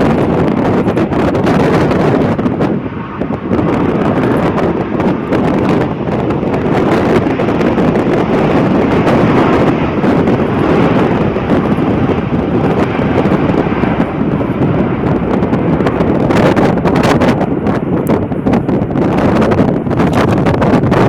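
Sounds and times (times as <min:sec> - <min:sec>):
jet engine rumble: 0:00.0 - 0:21.0
wind buffeting microphone: 0:00.0 - 0:21.0.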